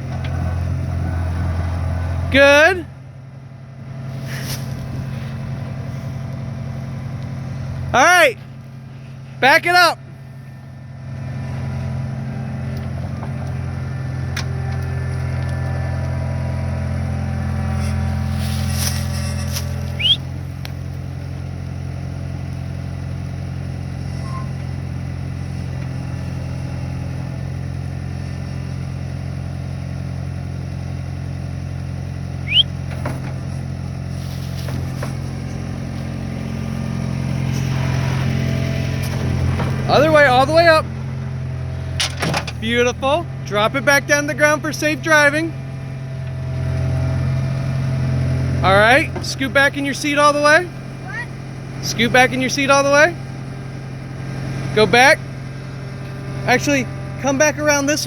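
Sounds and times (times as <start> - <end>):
loader engine running: 0.0 - 58.0
sharp rising squeaks: 17.3 - 20.5, 24.1 - 24.7, 32.4 - 33.0.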